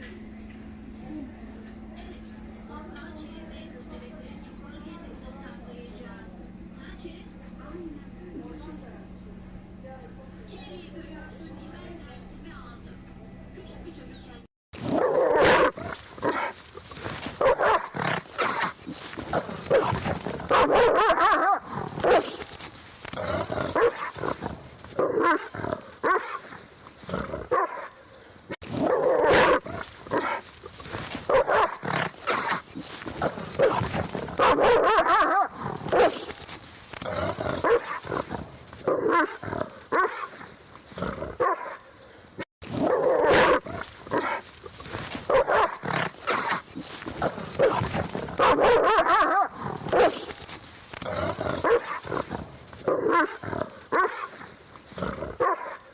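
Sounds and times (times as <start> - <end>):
dog barking: 14.9 - 16.6, 17.4 - 18.7, 19.4 - 22.5, 23.7 - 24.4, 25.0 - 26.5, 27.4 - 28.1, 28.7 - 30.4, 31.3 - 32.6, 33.2 - 36.4, 37.6 - 40.4, 41.3 - 42.0, 42.8 - 44.4, 45.2 - 50.4, 51.6 - 54.4, 55.3 - 55.9.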